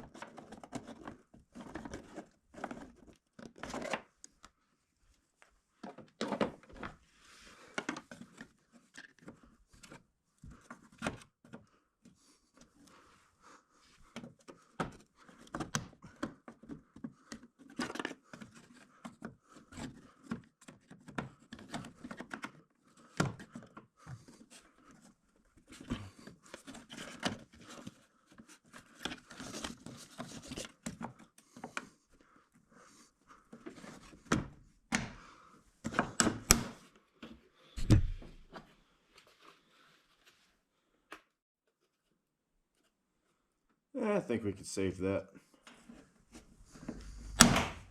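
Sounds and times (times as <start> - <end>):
plastic clicks scrapes and knocks: 0.1 - 4.5, 14.1 - 31.9
heavy thud: 47.2 - 47.9.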